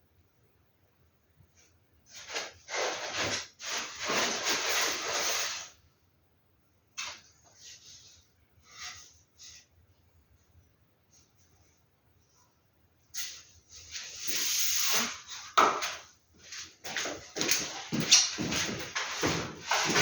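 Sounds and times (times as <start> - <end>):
poster rustling: 16.6 - 20.0.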